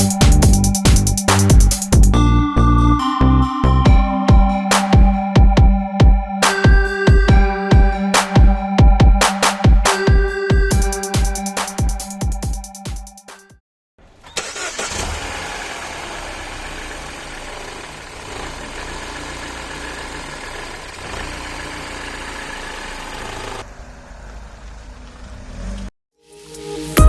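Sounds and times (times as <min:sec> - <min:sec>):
car engine starting and idling: 0:14.0 - 0:25.9.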